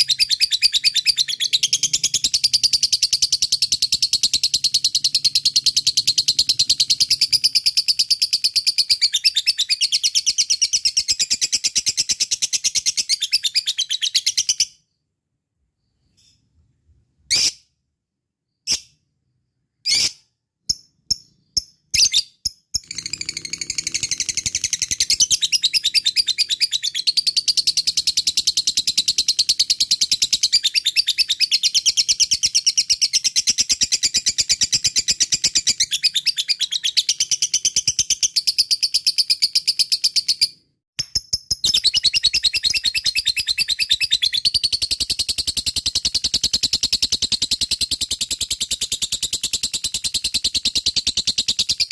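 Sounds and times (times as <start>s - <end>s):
lovebird sharp chirps: 17.2s - 17.8s, 18.6s - 51.9s.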